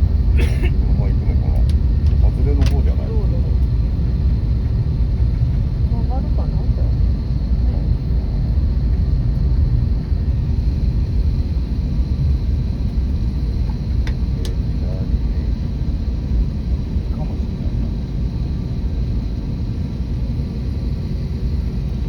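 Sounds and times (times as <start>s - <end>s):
jet engines rumbling: 0.0s - 22.0s.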